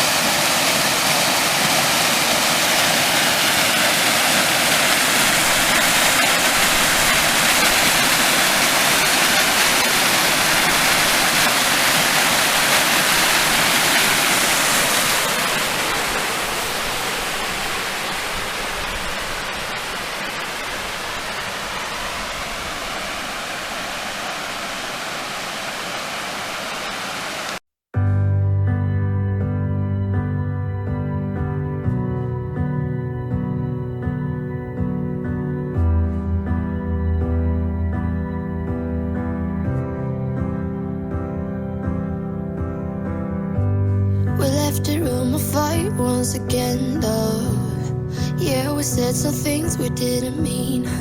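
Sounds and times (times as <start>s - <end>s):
small waterfall pouring: 0.0s - 27.6s.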